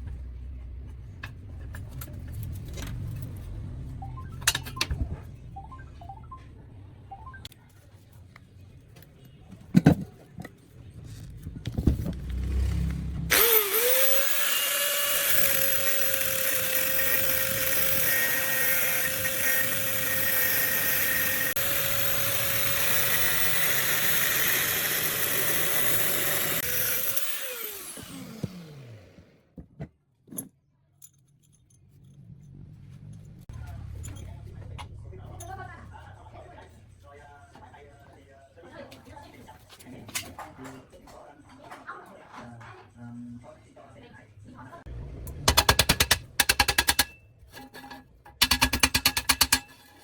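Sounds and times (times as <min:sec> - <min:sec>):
power tool motor whining: 0:12.3 - 0:29.3.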